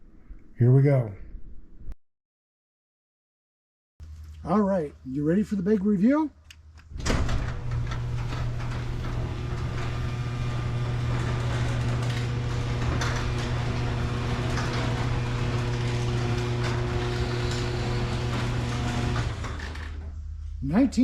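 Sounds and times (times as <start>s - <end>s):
low mechanical hum: 4.0s - 21.0s.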